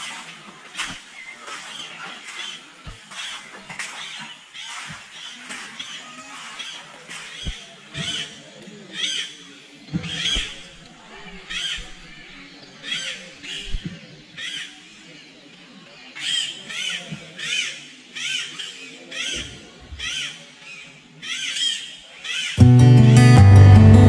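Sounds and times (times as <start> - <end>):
bird calling: 10.0 - 14.8.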